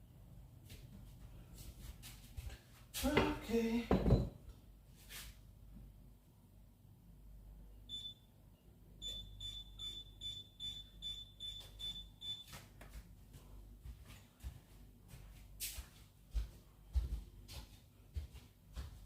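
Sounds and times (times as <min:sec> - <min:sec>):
high electronic beeps: 0:09.0 - 0:12.4.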